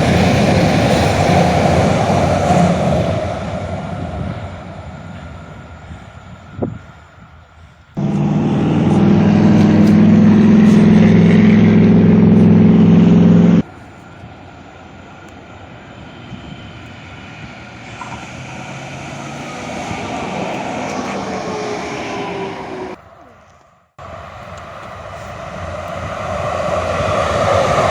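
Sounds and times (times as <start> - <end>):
loud vehicle engine running: 0.0 - 5.6, 8.0 - 23.0
traffic noise: 0.0 - 27.9
vehicle passing: 8.0 - 13.7, 16.0 - 23.0.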